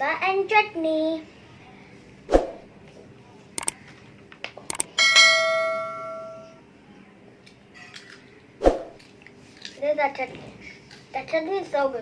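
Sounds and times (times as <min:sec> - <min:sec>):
metal tableware ringing: 0:04.9 - 0:06.6.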